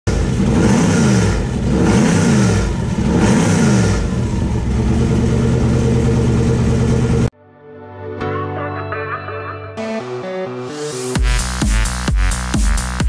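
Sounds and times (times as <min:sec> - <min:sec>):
car engine revving and idling: 0:00.0 - 0:07.3.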